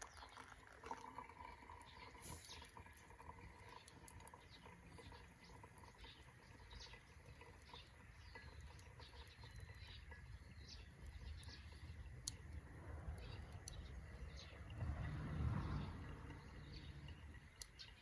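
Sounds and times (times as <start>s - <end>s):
low steady rumble: 10.4s - 18.0s.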